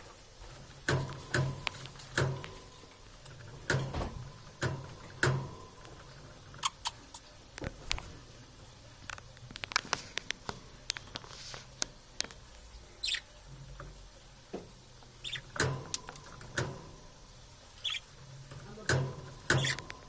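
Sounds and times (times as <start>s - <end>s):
high squeaky chirps: 13.0s - 13.4s, 15.2s - 15.6s, 17.8s - 18.1s, 19.5s - 19.9s.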